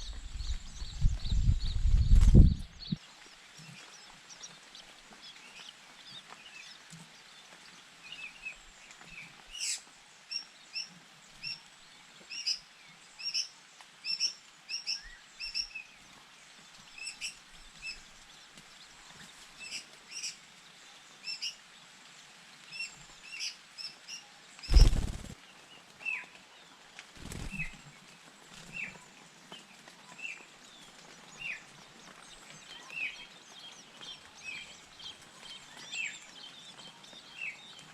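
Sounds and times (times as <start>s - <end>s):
birds giving high chirps: 24.7s - 25.4s.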